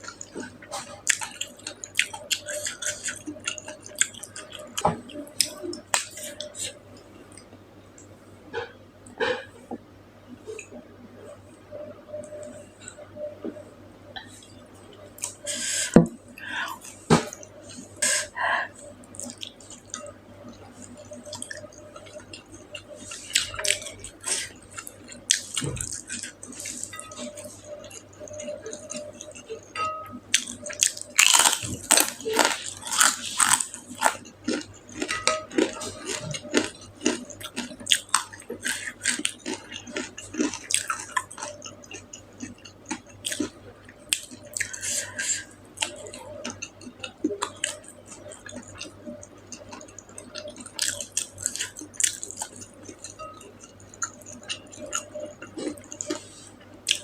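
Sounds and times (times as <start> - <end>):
chewing with wet smacks: 0.0 - 6.8, 19.0 - 29.7, 30.3 - 45.0, 45.8 - 57.0.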